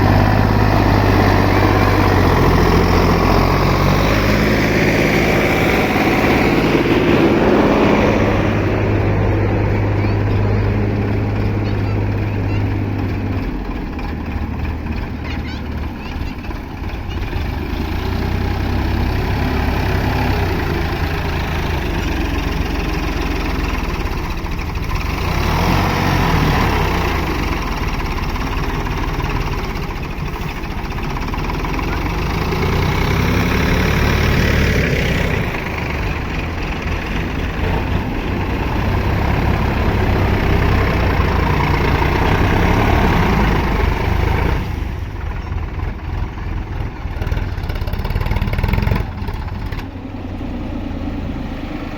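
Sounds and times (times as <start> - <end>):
tractor diesel engine revving: 0.0 - 51.9.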